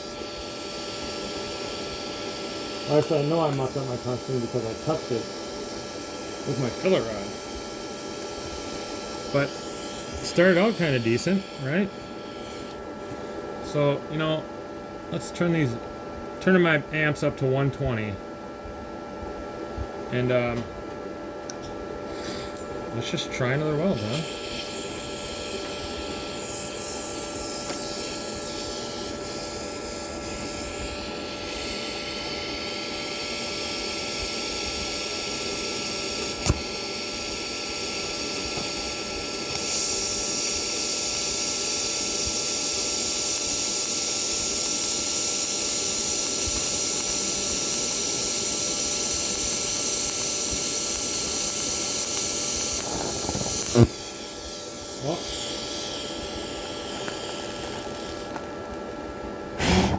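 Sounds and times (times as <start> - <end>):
welder machine hum: 0.0 - 59.9
welding arc buzzing hiss: 0.0 - 59.9
click: 36.2 - 36.6
sharp snap: 36.2 - 36.7.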